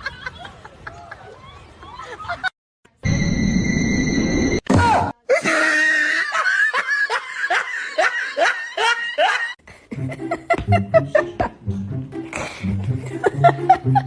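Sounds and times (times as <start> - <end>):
person laughing hard: 5.3 - 11.5, 12.5 - 14.0.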